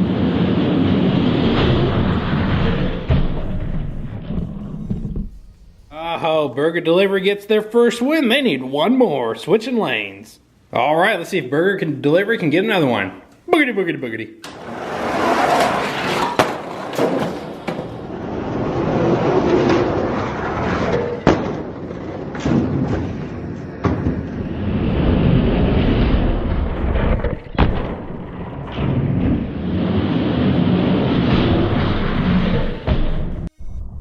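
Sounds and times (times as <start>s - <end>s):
toy trucks rolling on plastic track: 14.5s - 22.9s.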